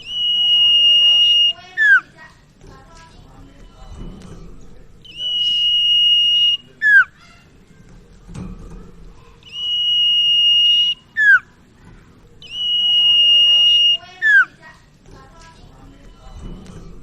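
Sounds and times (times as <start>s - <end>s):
bird whistling calls: 0.0s - 2.1s, 5.0s - 7.2s, 9.4s - 11.5s, 12.4s - 14.6s.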